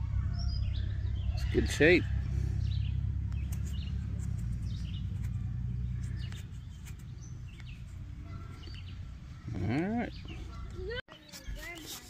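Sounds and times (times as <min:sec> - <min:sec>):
low rumble: 0:00.0 - 0:09.5
small birds chirping: 0:00.0 - 0:12.0.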